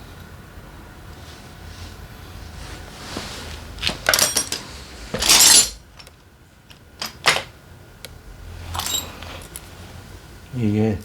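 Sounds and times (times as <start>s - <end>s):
metal engine parts clinking: 3.8s - 6.2s, 7.0s - 7.5s, 8.7s - 9.7s.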